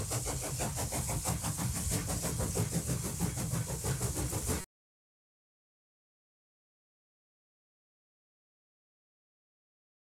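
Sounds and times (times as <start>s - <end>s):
train running: 0.0s - 4.6s.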